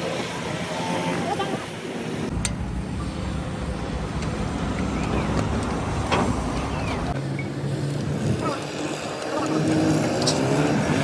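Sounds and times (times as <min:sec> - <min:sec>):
heavy engine rumbling: 0:02.2 - 0:08.3.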